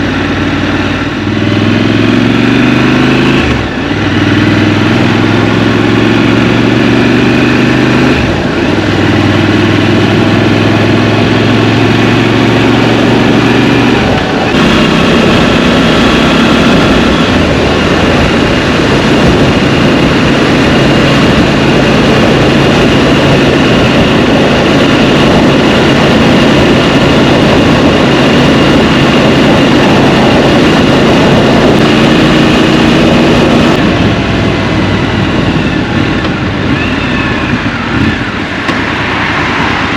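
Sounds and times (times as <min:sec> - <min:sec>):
motorcycle engine: 0:00.0 - 0:39.9
rushing wind: 0:00.0 - 0:39.9.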